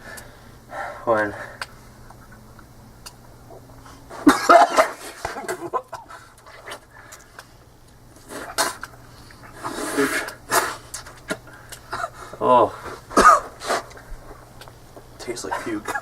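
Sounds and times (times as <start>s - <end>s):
people gagging and coughing: 4.2s - 6.3s, 13.1s - 13.7s.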